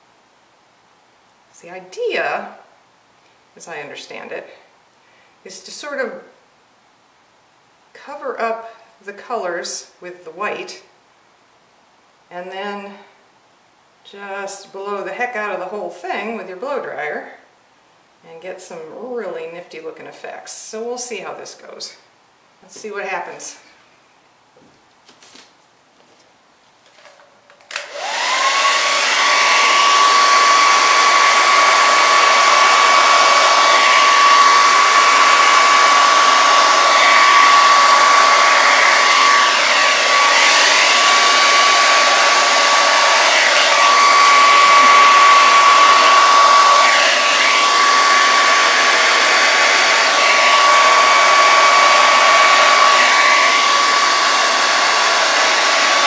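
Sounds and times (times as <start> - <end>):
hair dryer running: 26.9 - 56.0.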